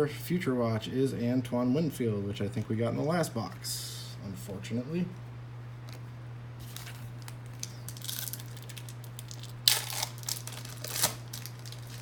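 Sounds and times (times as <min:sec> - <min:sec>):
steady low hum: 0:00.0 - 0:12.0
cards being handled: 0:05.8 - 0:12.0
wrapper crinkling: 0:06.6 - 0:12.0.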